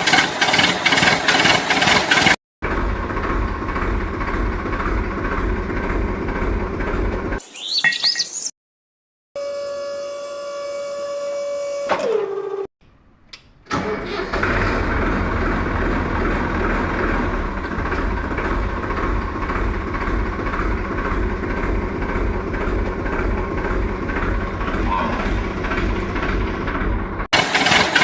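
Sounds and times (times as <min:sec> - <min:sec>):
engine starting and rumbling: 0:00.0 - 0:07.4, 0:11.9 - 0:28.0
clicks: 0:12.8 - 0:13.8.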